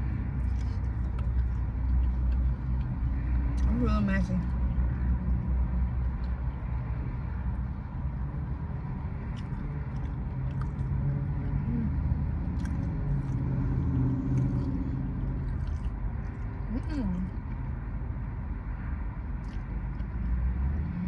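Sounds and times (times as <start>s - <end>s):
wet chewing: 0.0s - 3.8s, 9.0s - 17.6s, 19.4s - 20.4s
car engine rumble: 0.0s - 21.0s.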